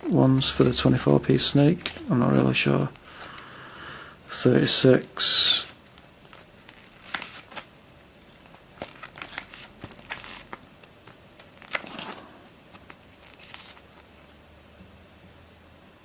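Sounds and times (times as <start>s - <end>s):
paper pages rustling: 6.0s - 7.7s, 8.3s - 14.3s.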